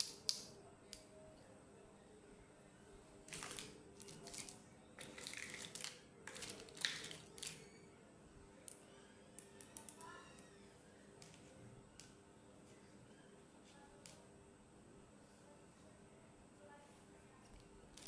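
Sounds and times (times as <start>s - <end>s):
packaging rustling and crinkling: 3.3s - 7.6s.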